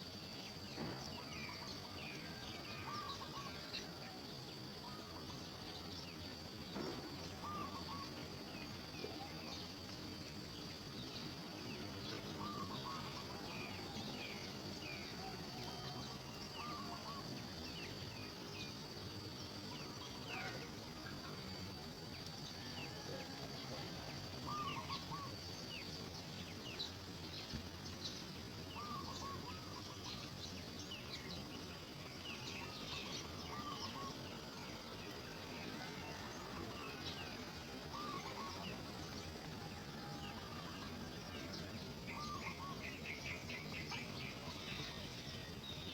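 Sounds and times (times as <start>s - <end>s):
high-pitched insect drone: 0.0s - 45.9s
low repeated bird call: 0.8s - 5.9s, 6.5s - 9.8s, 11.2s - 18.8s, 22.5s - 45.9s
birds chirping: 24.0s - 45.9s.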